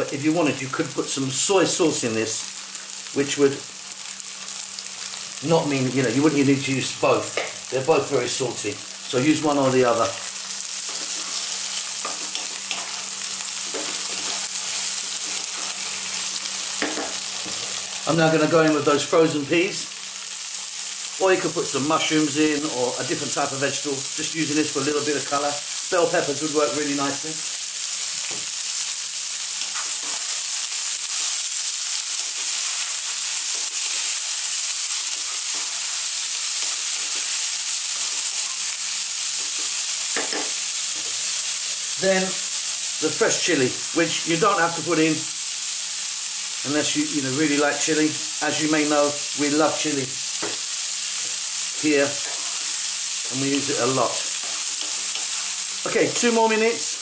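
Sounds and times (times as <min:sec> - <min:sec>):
food sizzling in hot oil: 0:00.0 - 0:57.0
spatula scraping food in pan: 0:10.8 - 0:18.0, 0:29.6 - 0:30.4, 0:35.1 - 0:36.0, 0:52.1 - 0:53.4, 0:54.2 - 0:55.9.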